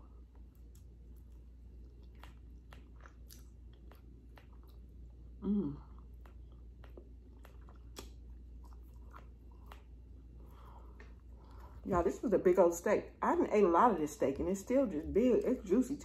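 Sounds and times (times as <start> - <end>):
chewing with mouth clicks: 0.0 - 12.0.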